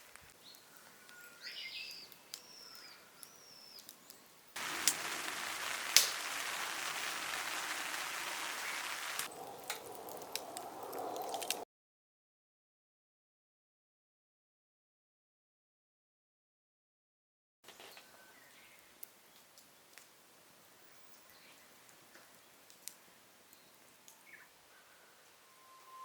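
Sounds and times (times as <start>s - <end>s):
steady loud hiss: 4.6s - 9.3s.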